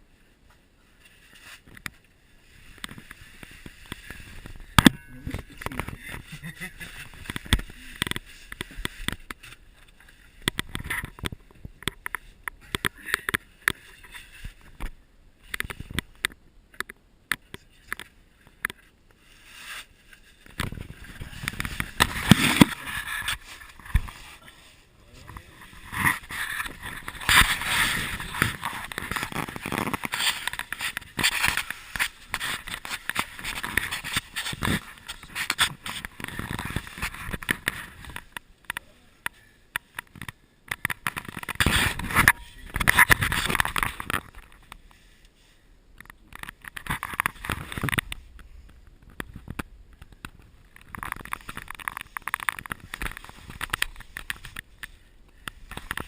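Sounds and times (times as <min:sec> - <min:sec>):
clothing scraping against rock: 0:19.2 - 0:38.3, 0:41.1 - 0:44.6.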